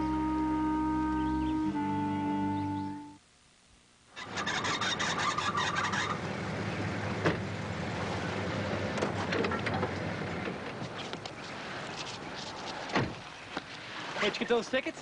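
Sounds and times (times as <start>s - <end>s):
car engine noise: 4.2s - 13.3s.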